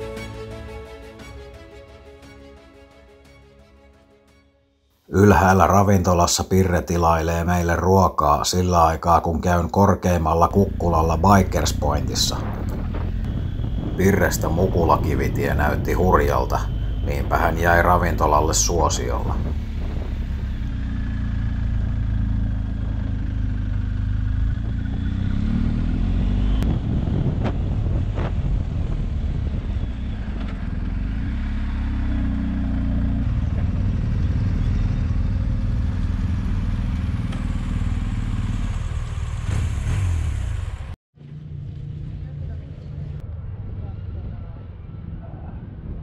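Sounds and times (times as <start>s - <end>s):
motorcycle engine running: 19.2s - 42.4s.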